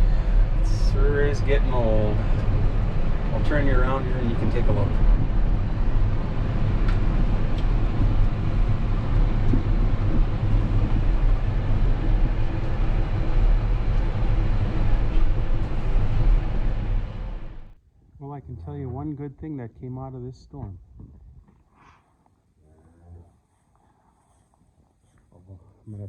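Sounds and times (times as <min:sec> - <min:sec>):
tractor engine rumbling: 0:00.0 - 0:17.8.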